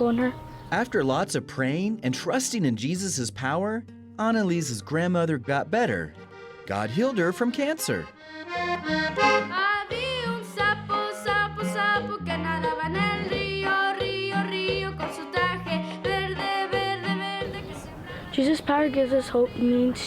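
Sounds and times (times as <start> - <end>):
accordion playing a tune: 5.2 - 11.6.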